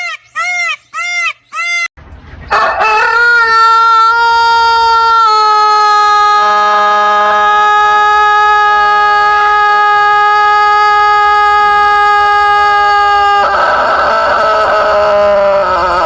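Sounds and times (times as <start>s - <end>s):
rooster crowing: 2.5s - 16.0s.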